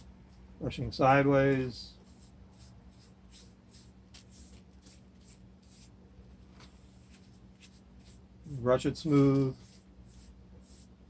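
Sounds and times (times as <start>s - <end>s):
wet brush swishing: 9.1s - 10.9s.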